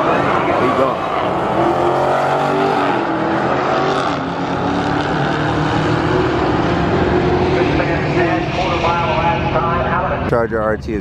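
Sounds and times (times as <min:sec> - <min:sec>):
engine at full throttle: 0:00.0 - 0:10.2.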